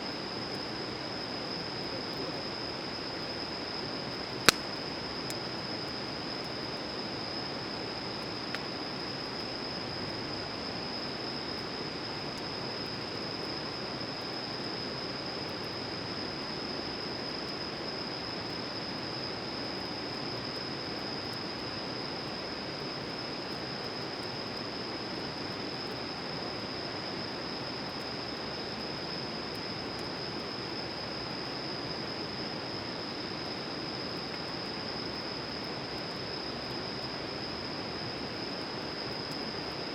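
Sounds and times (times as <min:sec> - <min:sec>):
faint crackles: 0:04.4 - 0:05.4.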